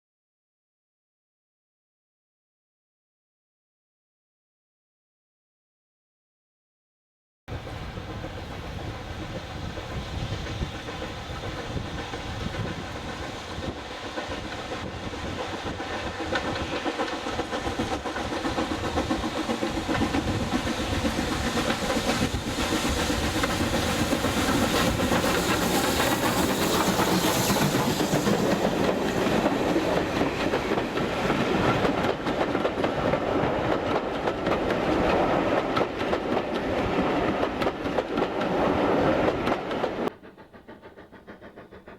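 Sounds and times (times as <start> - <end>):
steam train approaching: 7.5 - 41.9.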